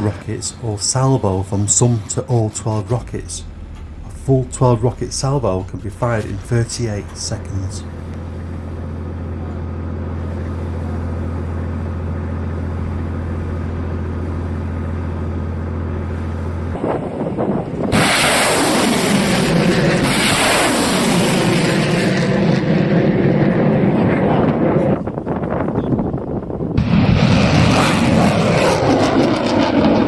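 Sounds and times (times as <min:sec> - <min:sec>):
steady low hum: 0:00.0 - 0:30.0
rockets launching: 0:02.7 - 0:08.9, 0:16.8 - 0:25.1, 0:26.7 - 0:30.0.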